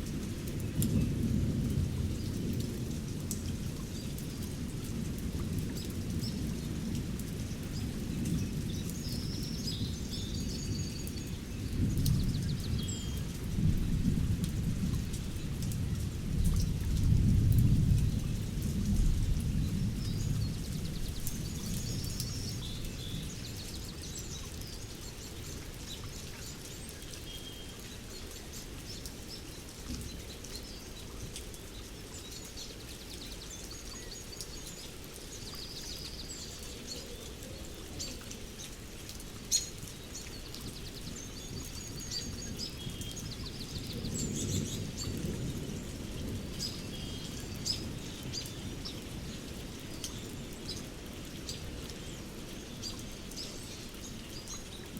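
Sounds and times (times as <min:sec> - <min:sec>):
steady rain: 0:00.0 - 0:54.9
birds singing and chirping: 0:07.5 - 0:14.0, 0:19.5 - 0:54.9
low thunder rumbling: 0:11.6 - 0:23.5, 0:43.3 - 0:48.4.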